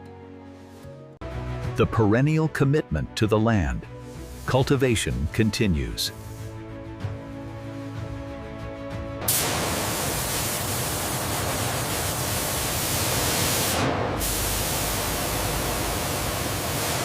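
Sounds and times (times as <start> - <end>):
background music: 0.0 - 11.2
loud steady hiss: 9.2 - 17.0.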